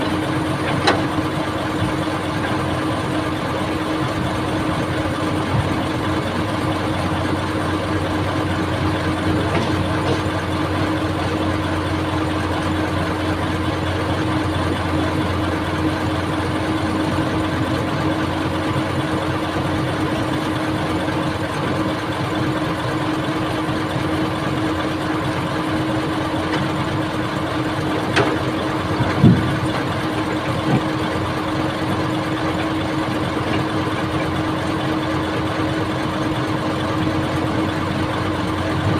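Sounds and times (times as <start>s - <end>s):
excavator engine running: 0.0s - 38.9s.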